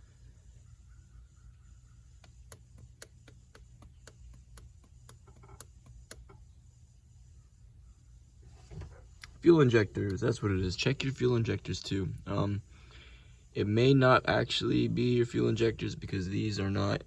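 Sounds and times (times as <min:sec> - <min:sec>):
low steady hum: 0:00.0 - 0:17.0
light clicks and ticks: 0:02.2 - 0:06.4.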